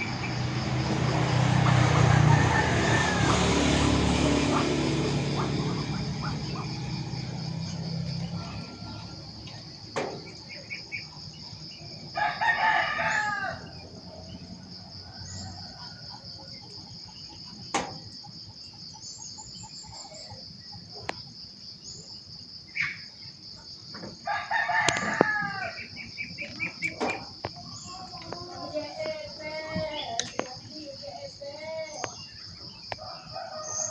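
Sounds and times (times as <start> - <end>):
rooster crowing: 0.0 - 10.7, 11.3 - 17.3, 24.2 - 30.1, 31.0 - 33.9
high pulsing insect buzz: 0.0 - 15.9.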